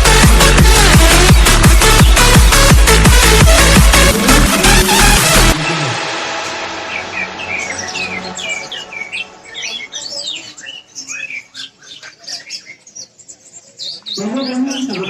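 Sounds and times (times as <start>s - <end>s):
electronic music: 0.0s - 10.9s
bird singing whistled notes: 6.9s - 15.0s.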